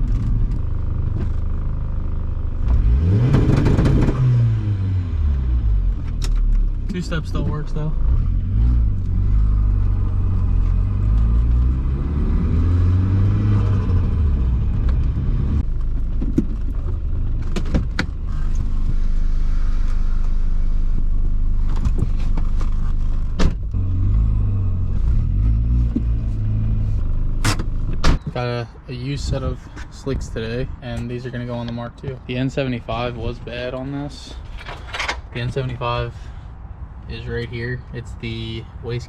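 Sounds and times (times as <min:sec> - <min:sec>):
turbocharged car engine accelerating: 0:02.5 - 0:06.0, 0:06.9 - 0:15.7, 0:23.6 - 0:28.0.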